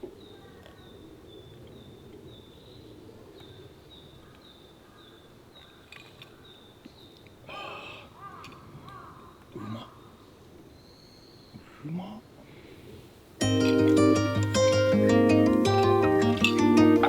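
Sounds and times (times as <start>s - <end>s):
steady low hiss: 6.6s - 17.0s
crow cawing: 7.5s - 10.3s.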